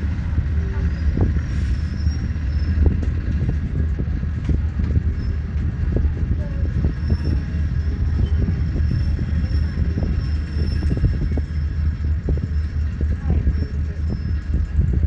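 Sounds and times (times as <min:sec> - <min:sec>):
passenger train rumbling: 0:00.0 - 0:15.0
running gear knocking on track: 0:02.3 - 0:15.0.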